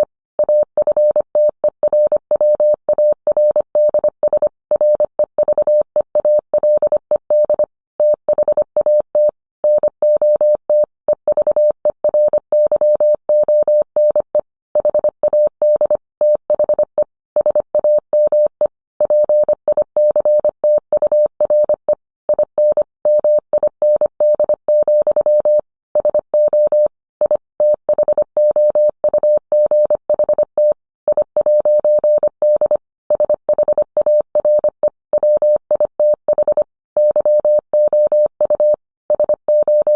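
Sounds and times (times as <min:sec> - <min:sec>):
morse code tone: 0:31.4 - 0:39.9.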